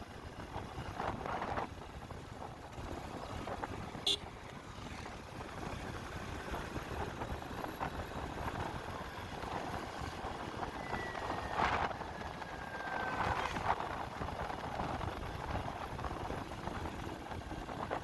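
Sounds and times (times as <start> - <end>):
motorcycle road and wind noise: 0.0 - 18.0
faint falling whistle: 10.8 - 13.5.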